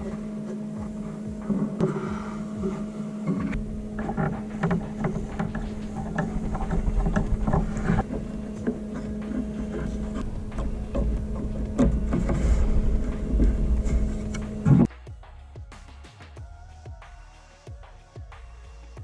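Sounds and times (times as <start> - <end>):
steady low hum: 0.0 - 15.2
wood pieces knocking and scraping: 3.3 - 14.9.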